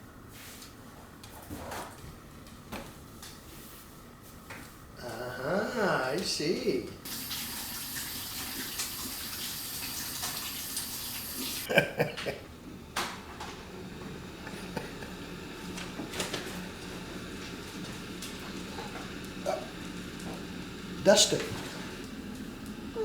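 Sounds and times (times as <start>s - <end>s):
water running from a tap: 7.0s - 11.7s, 14.2s - 23.0s.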